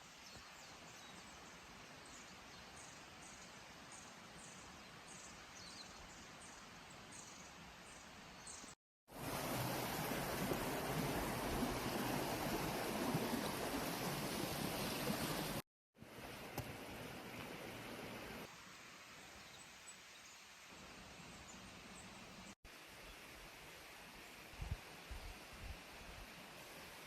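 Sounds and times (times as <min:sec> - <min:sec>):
flowing water rushing: 0:09.1 - 0:19.0.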